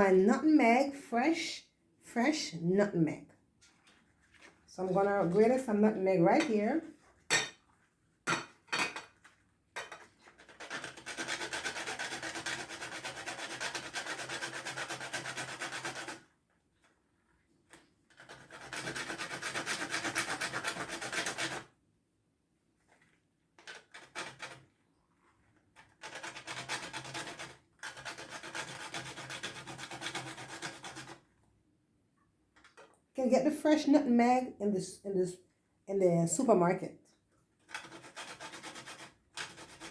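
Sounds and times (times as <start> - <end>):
nutmeg being grated: 9.8 - 16.2, 18.2 - 21.7, 26.0 - 31.2, 37.7 - 39.9.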